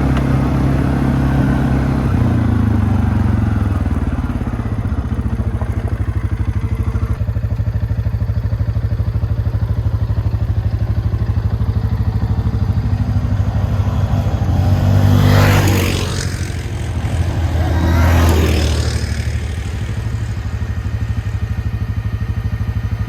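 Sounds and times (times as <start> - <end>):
engine revving: 0.0 - 7.2, 10.5 - 23.0
atv engine running: 0.0 - 23.0.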